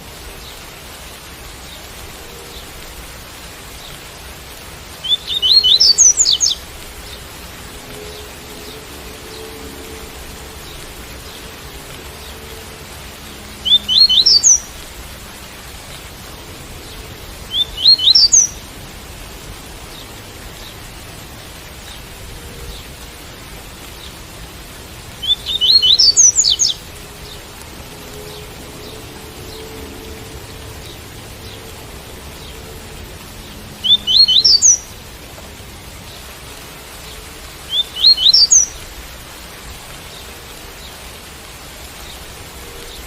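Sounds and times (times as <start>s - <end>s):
steady rain: 0.0s - 43.0s
bird whistling song: 5.0s - 6.6s, 13.6s - 14.7s, 17.5s - 18.6s, 25.2s - 26.8s, 33.8s - 34.9s, 37.7s - 38.8s.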